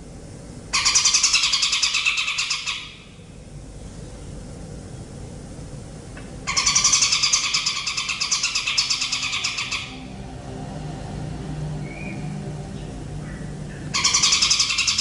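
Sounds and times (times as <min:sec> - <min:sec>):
faint low hum: 0:00.0 - 0:15.0
bird rattling trill: 0:06.5 - 0:10.0, 0:13.9 - 0:15.0.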